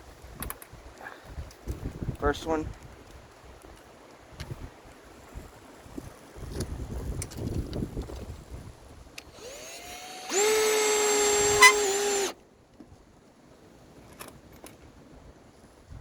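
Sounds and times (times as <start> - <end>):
cordless drill whining: 9.2 - 12.4.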